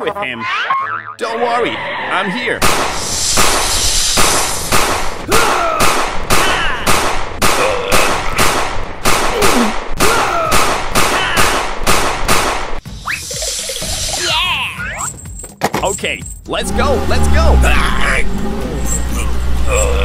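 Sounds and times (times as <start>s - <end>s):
rapid sharp bangs: 2.6s - 12.8s.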